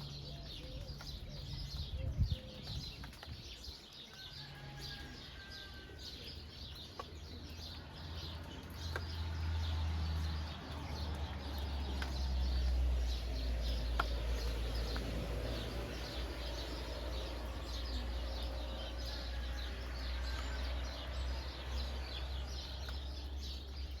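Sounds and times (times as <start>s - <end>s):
birds chirping and calling: 0.0s - 24.0s
rain pattering: 0.0s - 24.0s
drip-like ticks: 6.3s - 24.0s.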